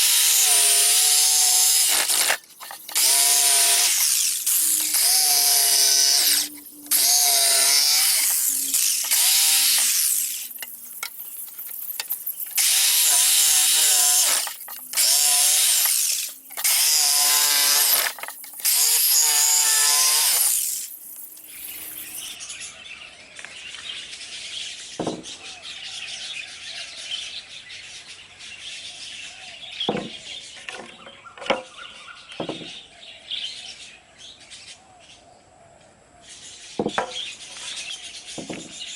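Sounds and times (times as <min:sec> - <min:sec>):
electric power tool cutting wood: 0:00.0 - 0:22.4.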